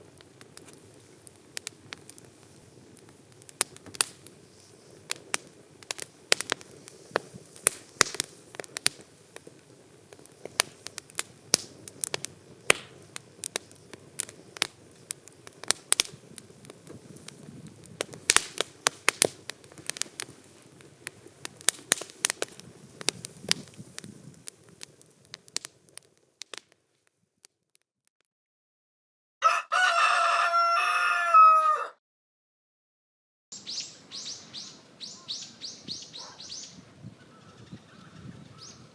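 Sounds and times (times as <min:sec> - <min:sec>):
campfire crackling and popping: 0:00.0 - 0:28.2
rooster crowing: 0:29.4 - 0:32.0.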